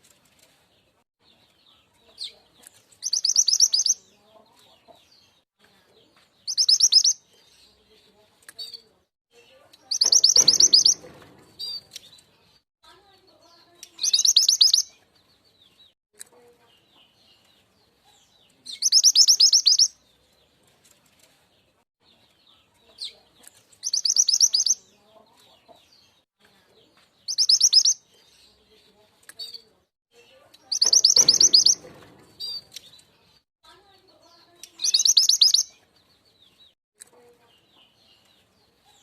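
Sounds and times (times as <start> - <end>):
faint bird chirps: 3.0 - 4.1, 6.0 - 7.8, 9.4 - 12.0, 13.5 - 15.0, 16.4 - 19.9, 23.8 - 25.5, 26.8 - 28.7, 30.2 - 33.4, 34.0 - 35.8
bird chattering call: 9.9 - 11.0, 30.7 - 31.9.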